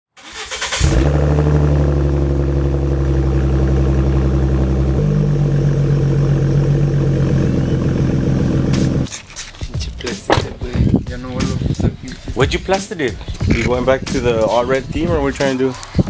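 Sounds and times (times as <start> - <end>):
car engine idling: 0.2 - 14.0.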